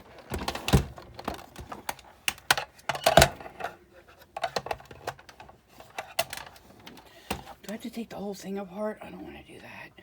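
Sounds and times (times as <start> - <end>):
clicks and knocks of parts handled: 0.0 - 7.8.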